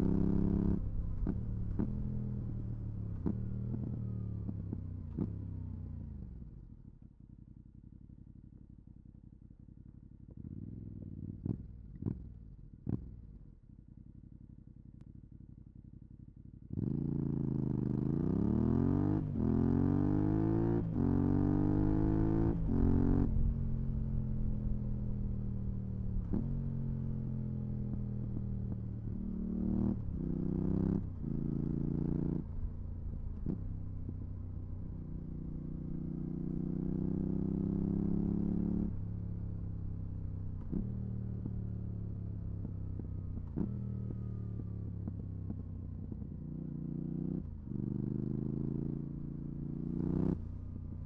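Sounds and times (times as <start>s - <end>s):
motorcycle engine revving and upshifting: 16.7s - 34.2s, 40.6s - 50.6s.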